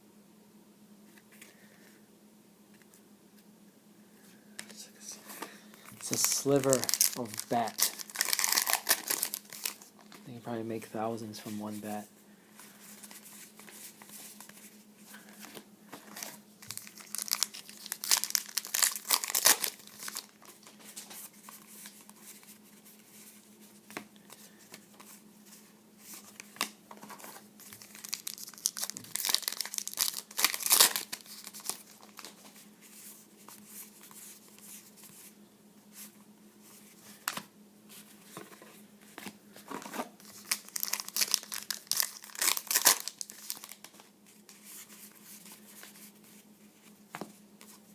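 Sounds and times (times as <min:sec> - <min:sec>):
faint steady hum: 0:00.0 - 0:47.9
cards being handled: 0:04.6 - 0:10.3, 0:12.6 - 0:35.3
wrappers tearing and crinkling: 0:06.0 - 0:10.1, 0:16.1 - 0:20.7, 0:27.2 - 0:32.4, 0:40.2 - 0:43.9.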